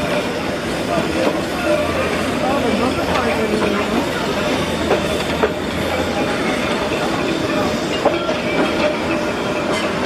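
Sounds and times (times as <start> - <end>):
wheels clattering over rail joints: 1.0 - 10.0.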